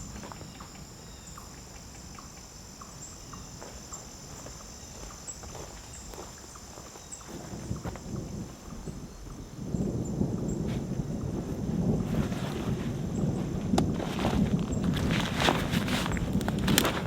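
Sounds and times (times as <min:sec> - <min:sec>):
footsteps on forest floor: 0:00.0 - 0:00.8, 0:03.5 - 0:08.1, 0:13.8 - 0:17.0
insects droning: 0:00.0 - 0:17.0.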